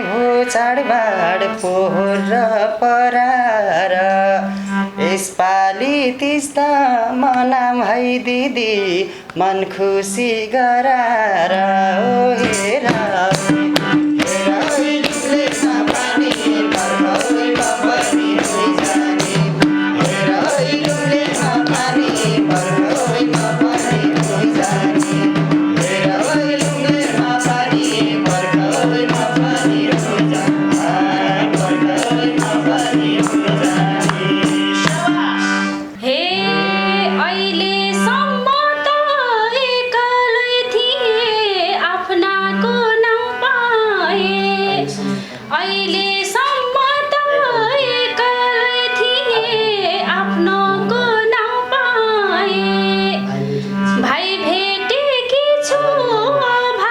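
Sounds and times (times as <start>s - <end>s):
hand drum beats: 12.4s - 35.3s
sustained held notes: 12.4s - 38.6s.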